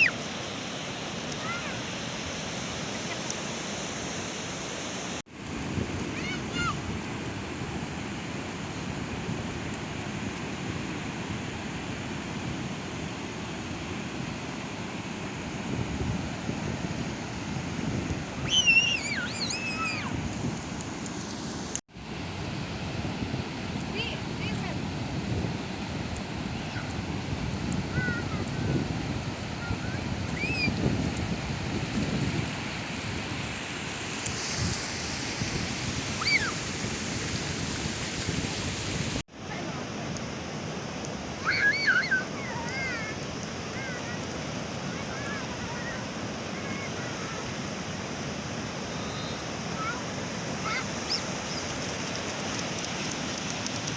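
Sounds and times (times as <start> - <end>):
sea waves breaking on beach: 0.0 - 53.9
wind rumbling on microphone: 5.0 - 53.9
high-pitched voice shrieking: 18.5 - 20.2, 36.2 - 36.6, 41.4 - 44.1.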